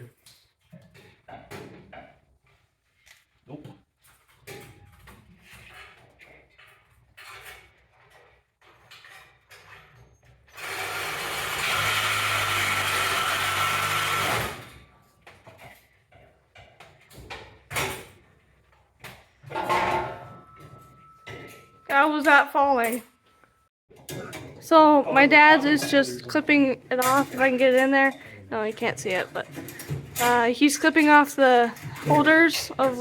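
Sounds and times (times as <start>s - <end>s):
reciprocating saw cutting pipe: 10.6s - 14.6s
knocks and clanks on metal: 19.0s - 22.9s.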